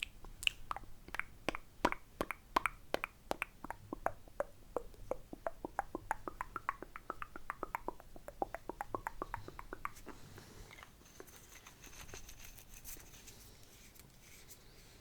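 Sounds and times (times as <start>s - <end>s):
wet mouth clicks and tongue pops: 0.0s - 10.2s.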